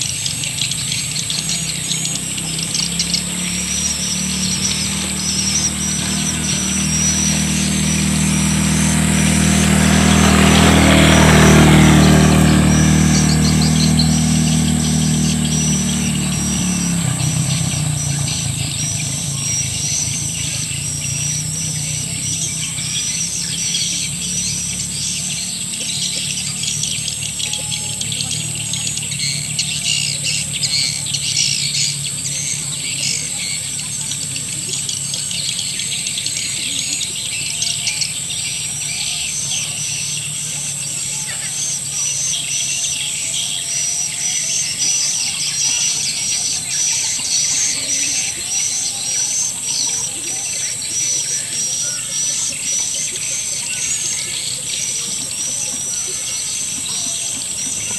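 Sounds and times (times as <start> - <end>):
low engine-like hum: 0.0 - 57.9
swiftlet chirps twittering: 0.0 - 57.9.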